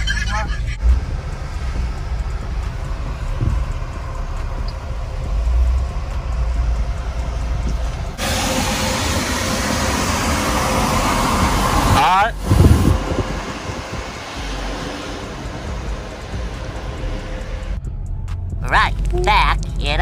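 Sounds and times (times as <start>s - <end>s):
car engine rumble: 0.0s - 20.0s
cars passing: 0.0s - 20.0s.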